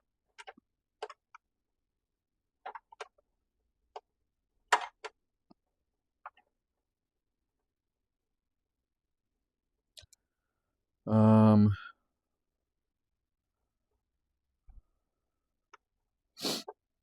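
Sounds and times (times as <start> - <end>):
clicks and knocks of parts handled: 0.3 - 1.4, 2.6 - 3.3, 4.7 - 5.6.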